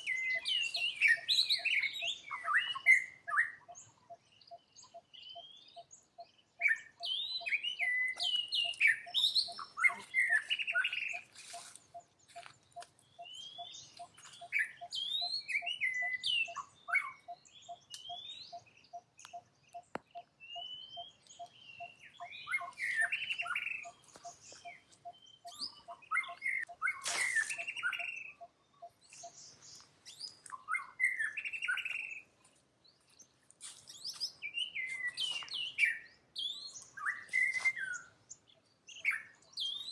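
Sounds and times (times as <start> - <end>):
high-pitched animal chirps and squeaks: 20.6 - 28.5.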